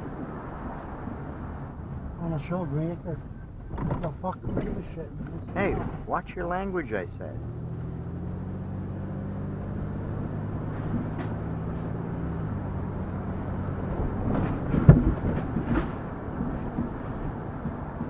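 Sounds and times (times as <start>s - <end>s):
vehicle engine hum and road noise: 0.0s - 18.0s
rattling knocks: 3.2s - 6.2s, 13.1s - 18.0s.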